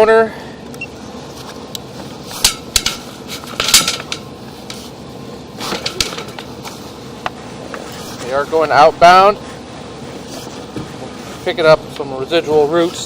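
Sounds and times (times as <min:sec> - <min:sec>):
steady background noise: 0:00.0 - 0:13.0
equipment knocks and clatters: 0:02.4 - 0:04.8, 0:05.6 - 0:08.3, 0:10.4 - 0:11.2.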